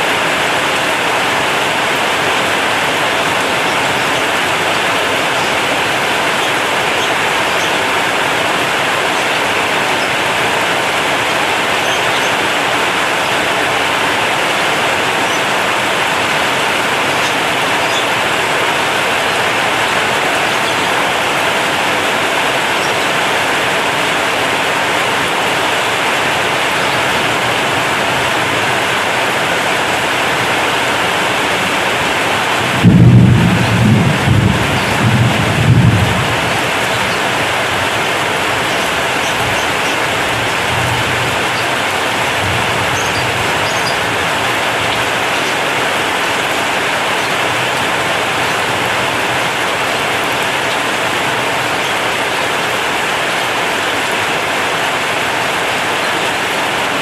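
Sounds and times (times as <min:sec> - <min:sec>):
heavy rain on a metal roof: 0:00.0 - 0:57.0
deep rumble of thunder: 0:32.6 - 0:37.4.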